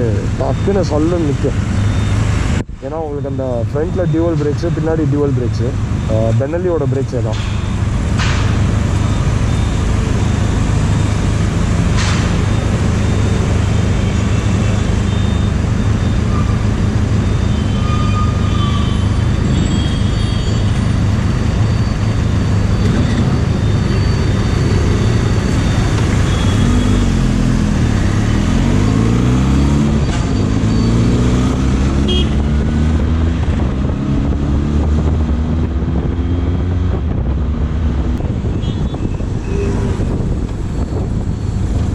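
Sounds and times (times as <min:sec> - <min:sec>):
wind and road noise: 0:00.0 - 0:41.9
motorcycle engine accelerating: 0:26.5 - 0:38.3.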